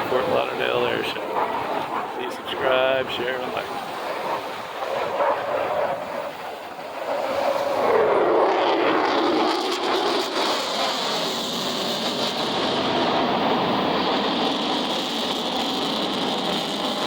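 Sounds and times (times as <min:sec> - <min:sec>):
jet flying past roaring: 0:00.0 - 0:17.0.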